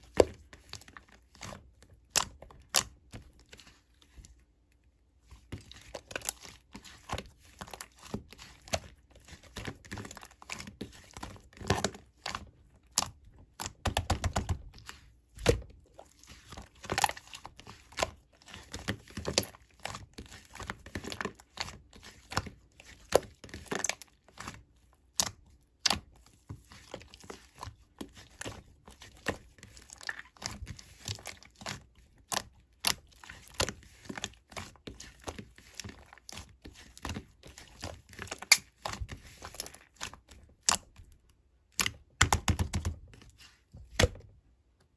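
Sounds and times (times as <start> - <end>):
slime squishing with sticky clicks: 0.0 - 44.9.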